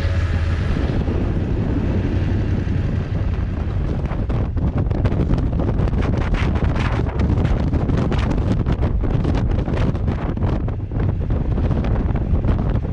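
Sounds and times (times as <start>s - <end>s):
motorcycle engine rumble: 0.0s - 12.9s
wind rushing over microphone: 0.0s - 12.9s.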